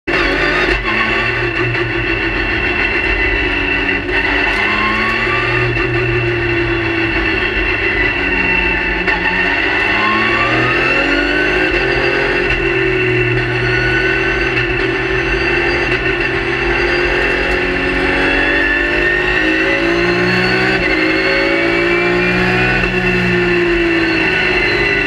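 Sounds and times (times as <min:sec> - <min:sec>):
race car engine from cockpit: 0:00.0 - 0:25.0.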